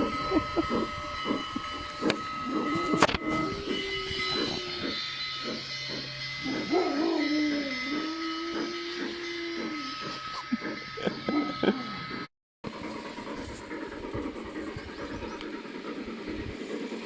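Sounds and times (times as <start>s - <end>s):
steam whistle blast: 0.0s - 12.3s
model steam locomotive chuffing: 0.0s - 17.0s.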